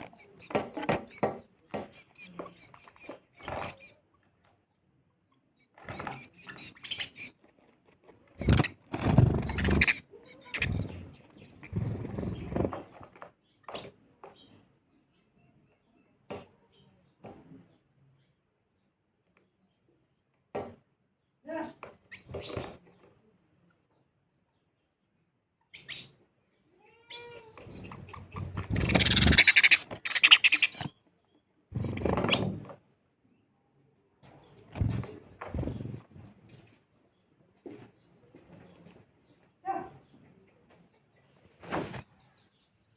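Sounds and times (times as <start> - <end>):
sparrows chirping: 0.0 - 20.4, 21.0 - 42.9
animal calls: 27.0 - 30.9.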